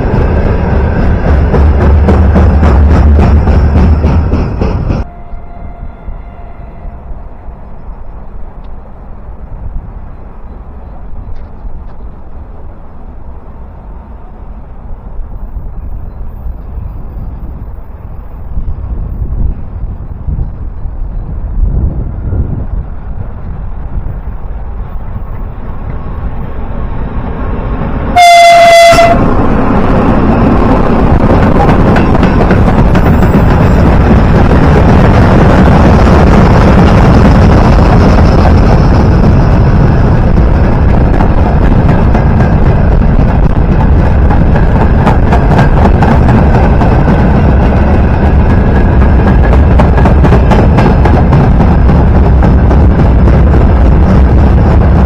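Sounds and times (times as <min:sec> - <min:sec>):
train rumbling past: 0:00.0 - 0:55.0
train horn blast: 0:05.0 - 0:07.9, 0:28.1 - 0:29.4.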